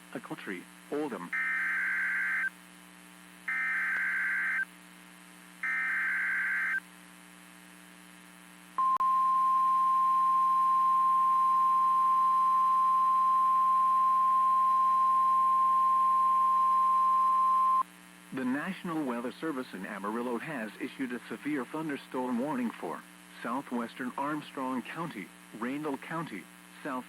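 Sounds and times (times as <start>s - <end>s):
steady warning alarm tone: 3.5s - 4.6s, 5.6s - 6.8s.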